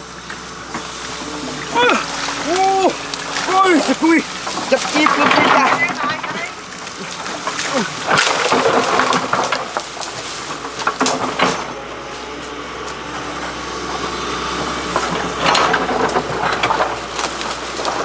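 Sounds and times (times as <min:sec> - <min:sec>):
excavator engine running: 0:00.0 - 0:18.0
rattling: 0:00.0 - 0:18.0
metal clanks and knocks: 0:03.1 - 0:18.0.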